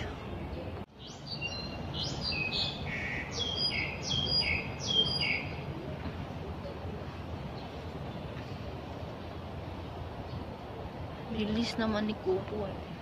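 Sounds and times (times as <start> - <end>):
songbird singing high notes: 1.0 - 5.6.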